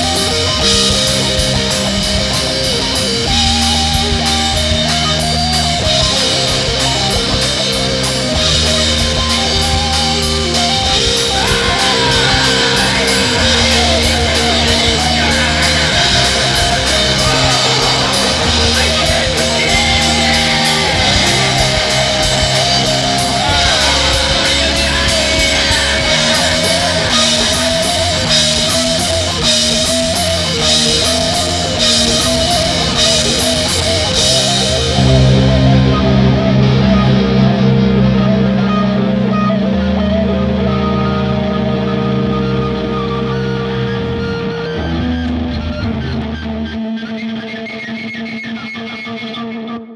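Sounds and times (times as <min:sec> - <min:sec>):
drum kit beat: 0:00.0 - 0:37.2
distorted electric guitar: 0:00.0 - 0:49.9.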